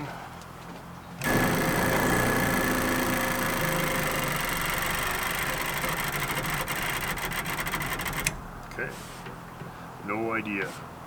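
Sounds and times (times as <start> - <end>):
engine cranking without starting: 1.2 - 9.6.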